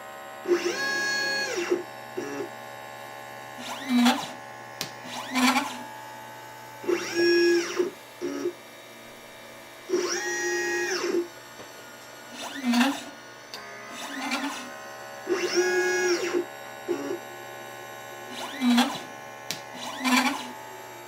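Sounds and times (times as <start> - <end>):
stepper motors whining: 0.5 - 2.6, 3.5 - 5.9, 6.8 - 8.6, 9.9 - 11.3, 12.3 - 17.4, 18.2 - 21.0.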